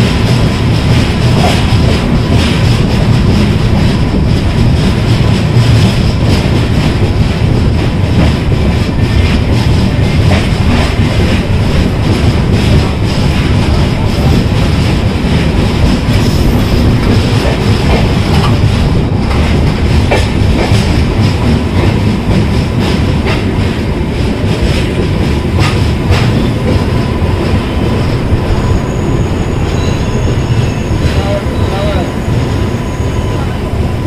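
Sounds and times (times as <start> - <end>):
train wheels rumbling on rail: 0.0 - 34.0
high wheel squeal: 27.8 - 33.7.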